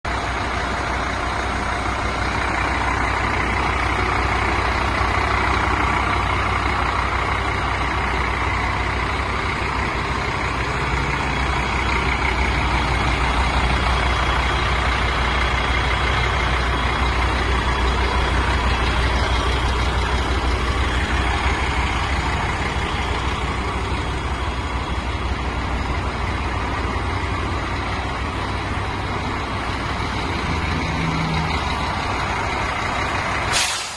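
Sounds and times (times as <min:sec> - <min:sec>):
diesel truck engine idling: 0:00.0 - 0:33.9.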